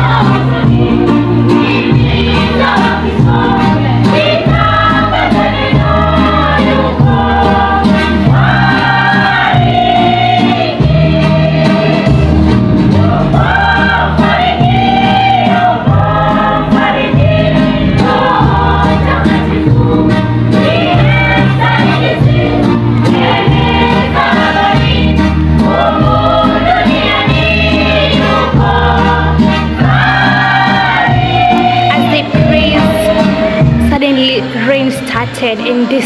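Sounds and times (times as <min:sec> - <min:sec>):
choir singing gospel: 0:00.0 - 0:34.0
instrumental backing with bass: 0:00.0 - 0:36.0.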